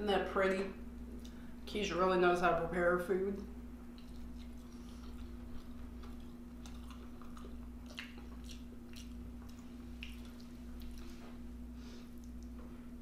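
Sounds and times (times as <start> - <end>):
steady low hum: 0.0 - 13.0
person chewing food: 3.8 - 12.7.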